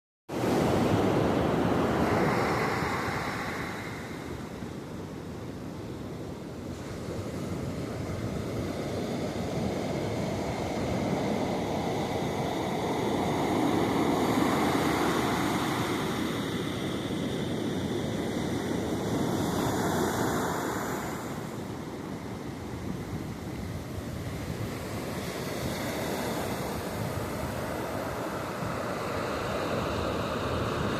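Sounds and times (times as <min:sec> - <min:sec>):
ocean surf breaking: 0:00.3 - 0:04.8, 0:06.7 - 0:30.9.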